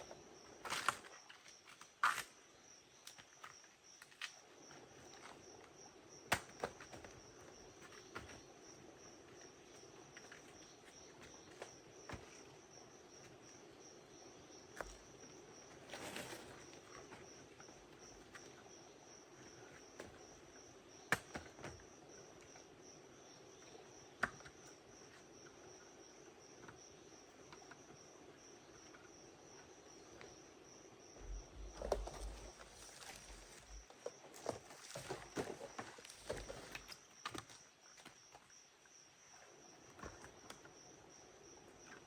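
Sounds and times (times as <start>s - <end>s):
insect chorus trilling: 21.9s - 38.6s.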